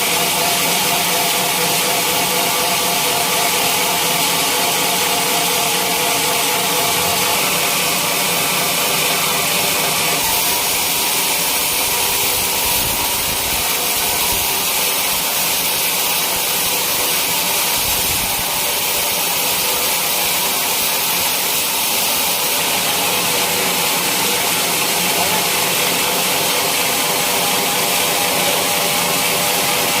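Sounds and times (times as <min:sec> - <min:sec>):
sawmill saw running: 0:00.0 - 0:30.0.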